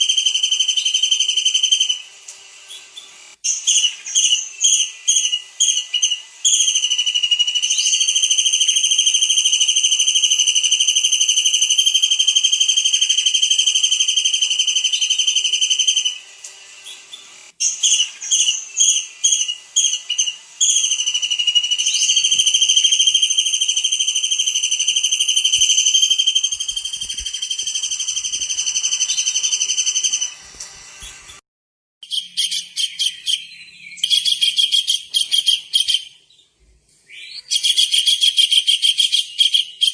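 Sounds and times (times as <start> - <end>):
kingfisher calling shrill trill: 17.6 - 30.4.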